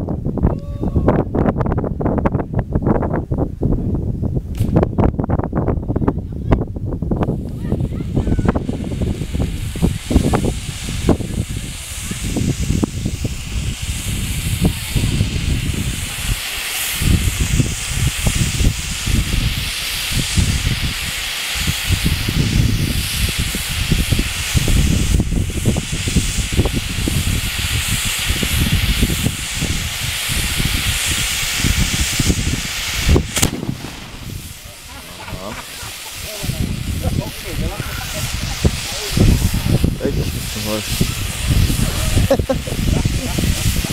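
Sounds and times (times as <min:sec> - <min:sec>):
sharp crack: 0:04.5 - 0:04.9, 0:32.9 - 0:36.2
fireworks hissing: 0:07.0 - 0:43.9
low rumbling: 0:29.2 - 0:43.9.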